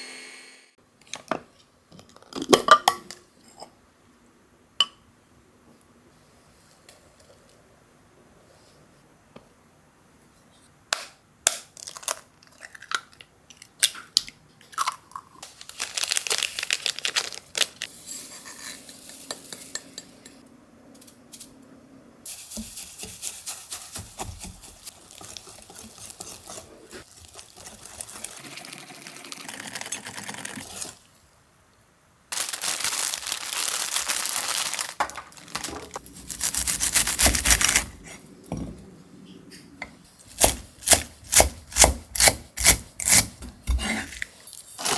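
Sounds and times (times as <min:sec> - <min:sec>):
stirring or mixing: 0:22.3 - 0:31.0, 0:36.0 - 0:44.9.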